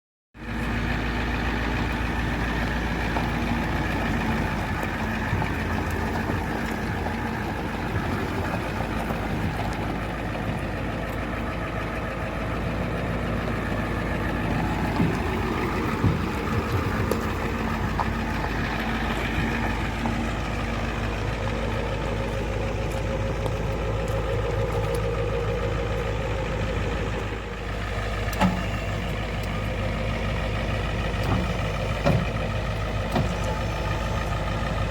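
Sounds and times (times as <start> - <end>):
truck engine idling: 0.4 - 34.9.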